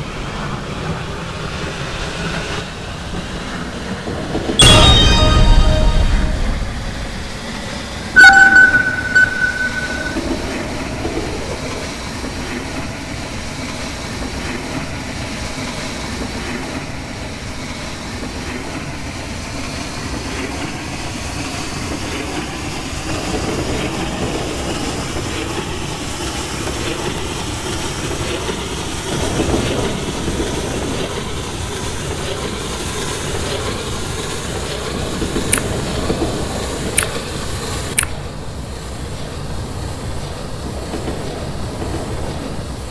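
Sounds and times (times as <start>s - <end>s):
loud high-pitched tone: 4.6s - 10.5s
train rumbling on rails: 38.7s - 42.9s.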